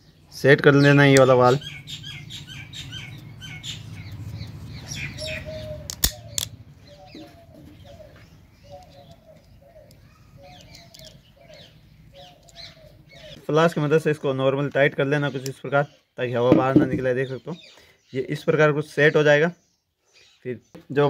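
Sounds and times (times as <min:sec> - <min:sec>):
small birds chirping: 0:00.0 - 0:21.0
sharp clicks: 0:05.9 - 0:06.6.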